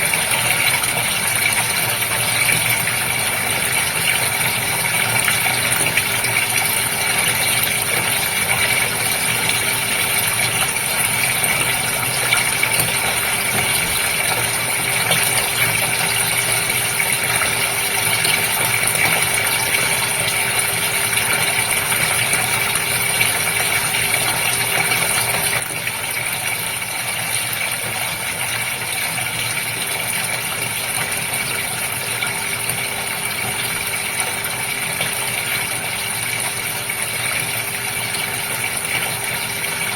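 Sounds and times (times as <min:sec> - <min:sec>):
fish tank water bubbling: 0:00.0 - 0:28.0.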